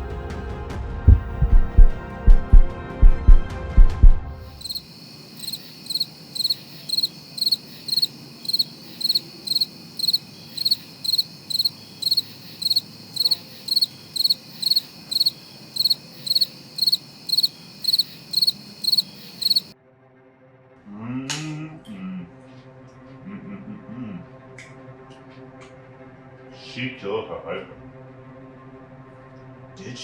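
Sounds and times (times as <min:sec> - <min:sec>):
crickets chirping: 0:01.1 - 0:03.4, 0:04.4 - 0:19.7.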